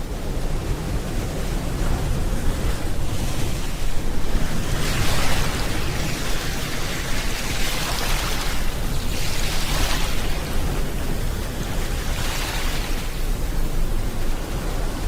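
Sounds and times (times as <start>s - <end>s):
ocean surf washing onto shore: 0.0s - 15.0s.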